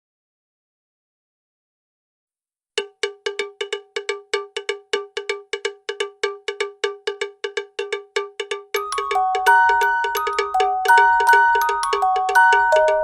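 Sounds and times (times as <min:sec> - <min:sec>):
metal bell struck rapidly: 0:08.8 - 0:13.0.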